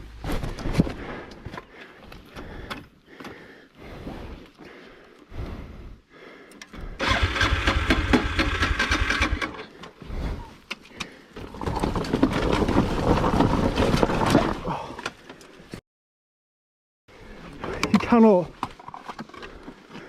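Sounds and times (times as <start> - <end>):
motorbike engine revving: 7.0 - 9.6.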